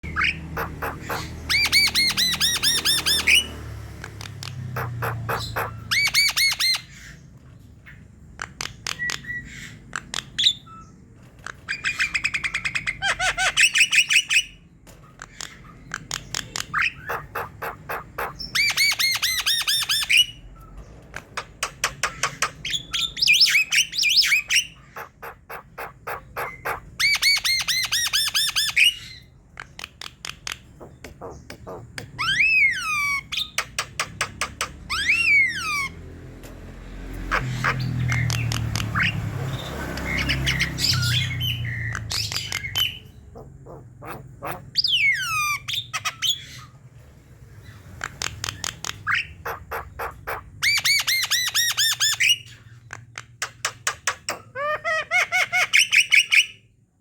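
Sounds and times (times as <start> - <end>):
birds chattering and singing: 0.0 - 56.8.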